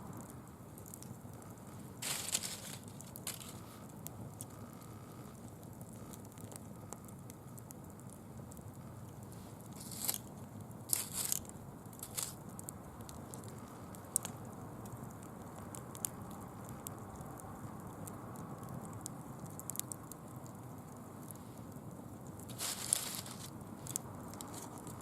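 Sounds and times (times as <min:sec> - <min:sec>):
bonfire crackling and popping: 0:00.0 - 0:25.0
leaves rustling: 0:02.0 - 0:03.8, 0:09.8 - 0:10.2, 0:10.9 - 0:12.4, 0:22.5 - 0:25.0.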